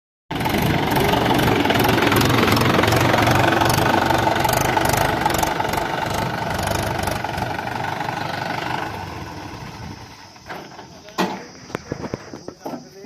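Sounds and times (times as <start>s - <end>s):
diesel engine knocking: 0.3s - 10.4s.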